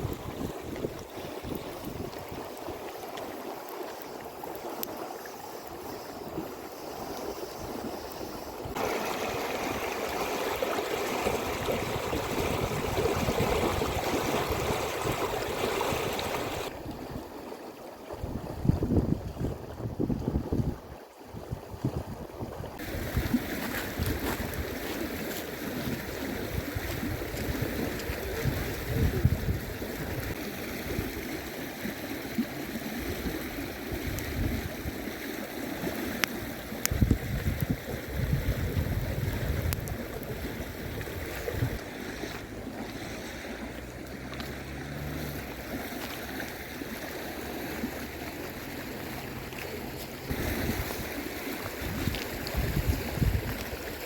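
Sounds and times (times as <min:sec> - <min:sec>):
wind buffeting microphone: 0:00.0 - 0:02.9, 0:07.4 - 0:17.4, 0:18.1 - 0:31.4, 0:32.8 - 0:35.2, 0:35.8 - 0:44.4, 0:47.7 - 0:54.0
river water rushing: 0:08.6 - 0:18.3, 0:39.9 - 0:54.0.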